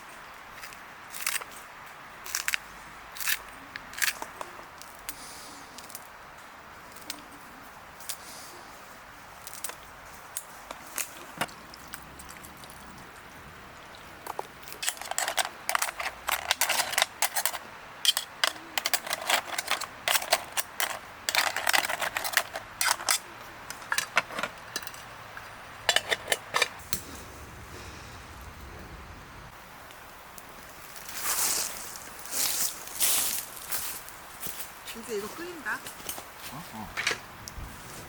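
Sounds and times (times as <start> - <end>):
cookware and utensils clattering: 14.8 - 25.1, 25.8 - 26.8.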